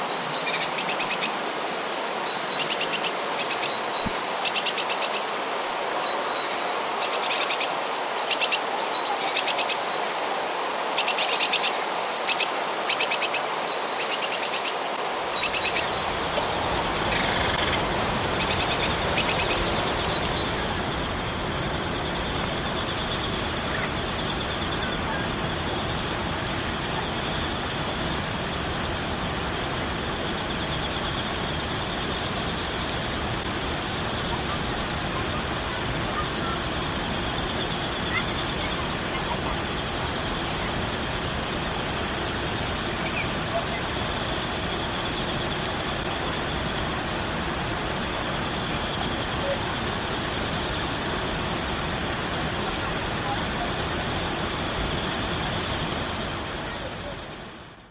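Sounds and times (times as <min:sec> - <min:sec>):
stream rushing: 0:00.0 - 0:30.6, 0:31.3 - 0:57.9
steady high buzz: 0:15.1 - 0:23.1
birds trilling: 0:15.2 - 0:21.4.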